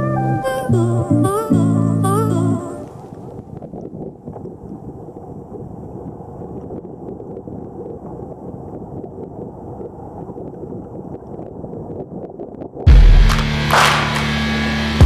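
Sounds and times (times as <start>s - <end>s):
wind buffeting microphone: 2.6s - 12.9s.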